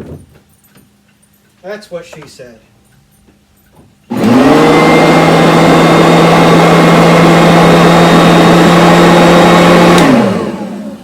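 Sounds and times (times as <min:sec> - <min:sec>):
vacuum cleaner motor whining: 0:04.1 - 0:11.0.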